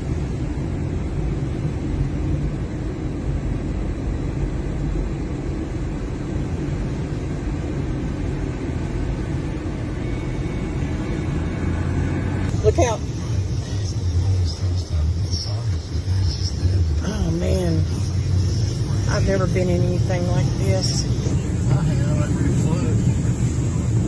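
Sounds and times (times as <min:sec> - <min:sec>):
car driving low rumble: 0:00.0 - 0:24.0.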